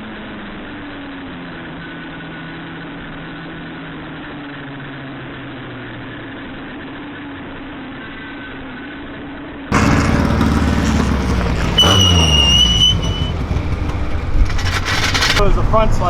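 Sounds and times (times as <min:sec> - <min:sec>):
race car engine: 0:09.7 - 0:16.0.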